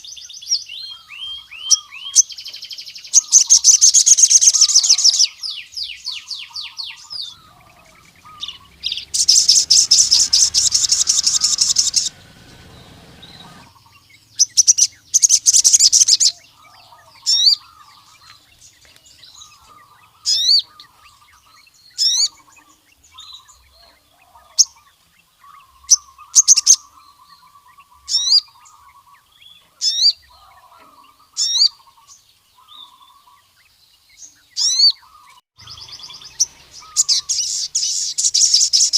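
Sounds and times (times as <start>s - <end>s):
sunbird trills: 0.0s - 33.7s, 34.3s - 38.9s
faint lower twittering: 3.1s - 24.4s, 35.0s - 38.9s
sharp high bird chirps: 6.2s - 16.4s, 35.6s - 38.9s.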